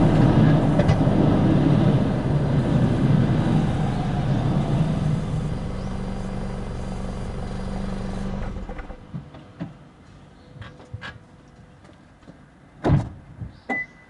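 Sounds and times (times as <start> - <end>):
car engine drone: 0.0 - 9.1
road and exhaust rumble: 0.0 - 13.7.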